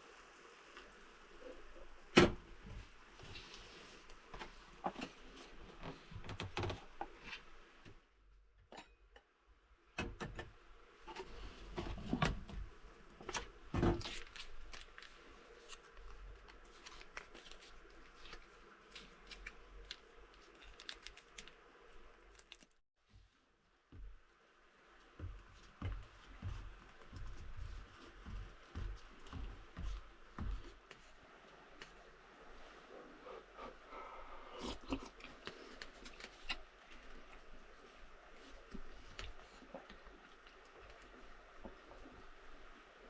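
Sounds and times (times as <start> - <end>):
objects being handled: 13.2 - 22.8.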